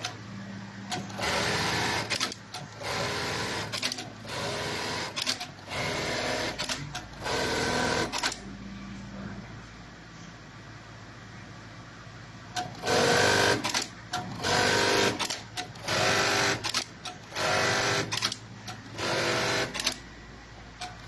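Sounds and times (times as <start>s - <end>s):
sewing machine stitching: 0.9s - 8.4s, 12.6s - 20.0s.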